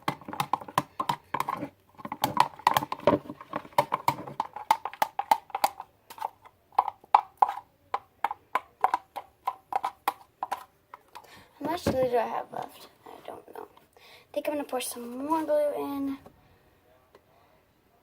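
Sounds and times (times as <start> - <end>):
spoon knocking and scraping bowl: 0.0 - 12.0.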